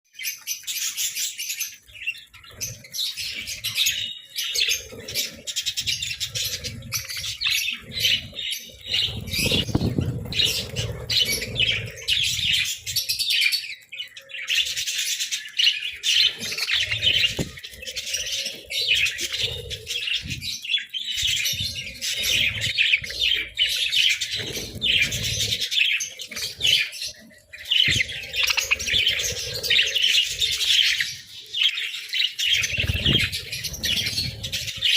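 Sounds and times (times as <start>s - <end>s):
budgerigars chirping: 0.2s - 34.9s.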